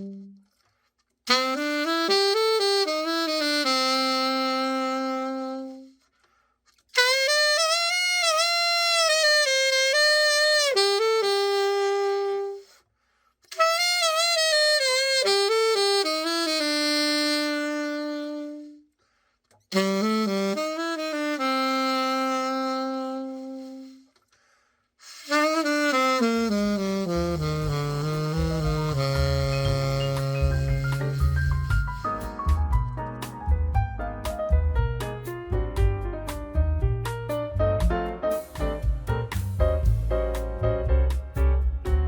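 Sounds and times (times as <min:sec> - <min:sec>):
alto saxophone playing solo: 0:00.0 - 0:00.6, 0:01.3 - 0:06.1, 0:06.9 - 0:12.8, 0:13.5 - 0:18.9, 0:19.7 - 0:24.2, 0:25.0 - 0:33.1.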